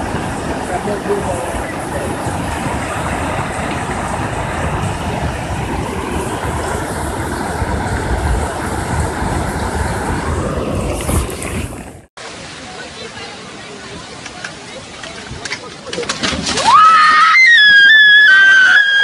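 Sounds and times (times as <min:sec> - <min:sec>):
low rumble: 0:00.0 - 0:12.1
flood water rushing: 0:00.0 - 0:19.0.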